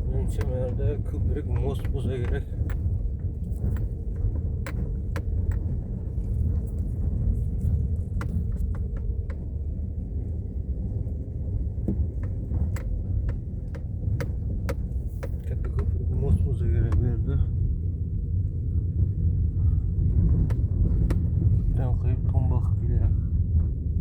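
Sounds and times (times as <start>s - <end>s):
light clicks and rattles: 0.0s - 17.4s
low vehicle rumble: 0.0s - 24.0s.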